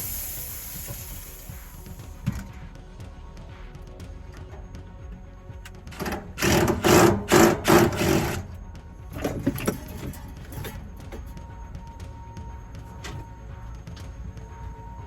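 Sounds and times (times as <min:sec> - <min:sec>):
background music: 0:00.0 - 0:15.0
small motor tool running: 0:05.8 - 0:11.3.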